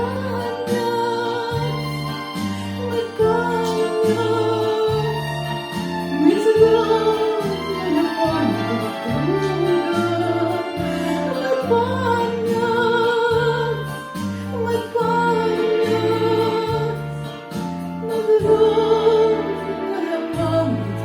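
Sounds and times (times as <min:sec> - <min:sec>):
accompaniment with bass line: 0:00.0 - 0:21.0
person singing with vibrato: 0:00.0 - 0:21.0.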